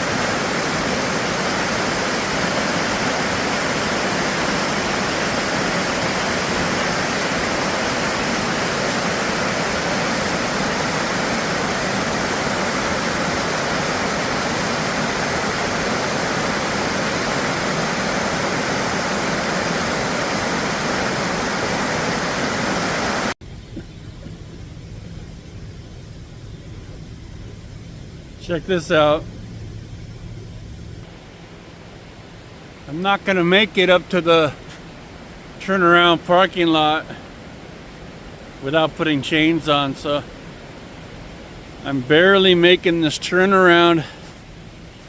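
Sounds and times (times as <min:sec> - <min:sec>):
loud rushing water: 0:00.0 - 0:23.4, 0:28.3 - 0:45.0
low hum: 0:00.0 - 0:33.5.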